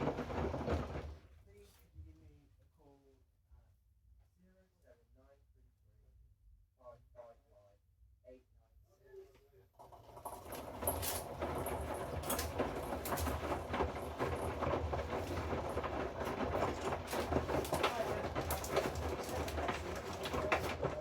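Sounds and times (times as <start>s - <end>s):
washing machine motor hum: 0.0s - 1.2s, 9.8s - 21.0s.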